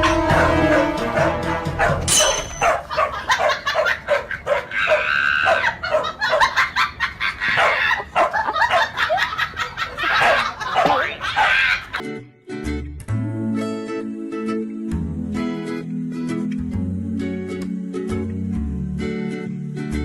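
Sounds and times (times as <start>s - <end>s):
dog barking rapidly: 0.3s - 6.6s, 7.5s - 9.1s, 10.0s - 12.0s.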